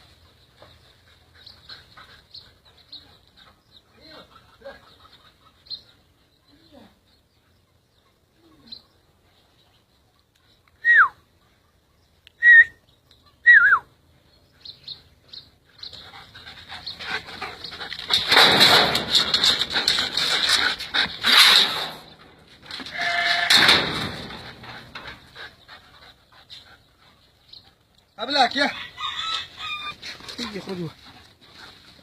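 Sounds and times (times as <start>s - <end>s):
puppies yelping: 15.8s - 26.1s, 28.8s - 30.9s.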